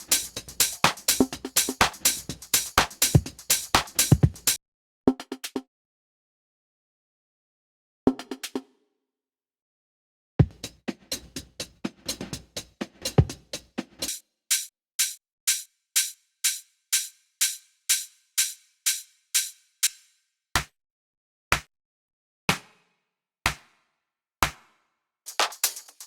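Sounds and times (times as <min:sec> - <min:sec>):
drum machine hits with reverb: 0:00.0 - 0:04.6, 0:10.4 - 0:15.2.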